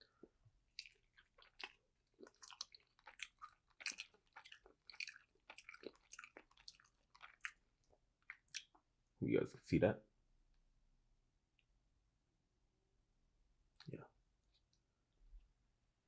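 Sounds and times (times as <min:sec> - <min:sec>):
quiet chewing with mouth clicks: 0:00.1 - 0:08.9, 0:13.7 - 0:15.5.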